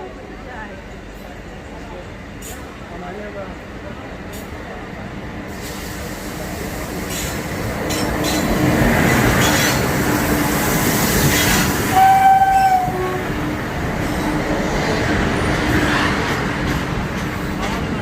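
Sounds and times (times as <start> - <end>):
train rumble: 0.0 - 18.0
train horn blast: 11.9 - 13.6.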